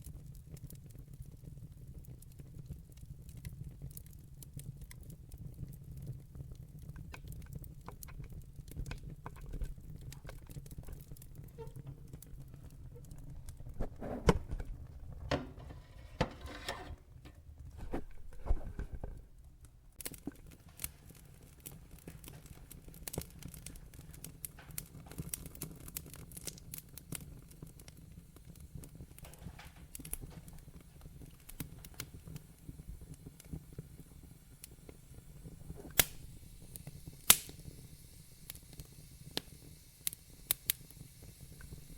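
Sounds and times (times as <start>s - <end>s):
logs crackling and snapping: 6.8s - 14.6s, 18.4s - 30.6s, 35.8s - 37.6s
loud pops of fire: 20.0s - 41.9s.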